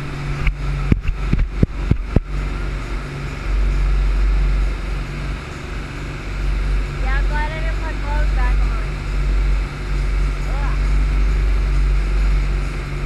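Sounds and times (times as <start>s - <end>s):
rush of wind and water: 0.0s - 13.0s
speedboat engine drone: 0.0s - 13.0s.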